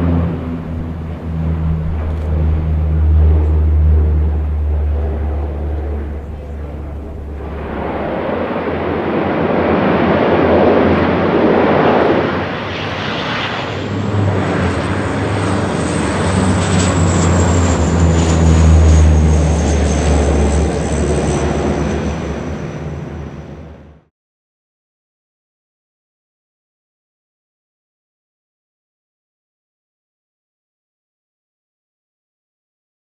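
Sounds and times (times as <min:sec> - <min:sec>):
high turbine whine: 0:00.0 - 0:23.8
turboprop engines droning: 0:00.0 - 0:24.1.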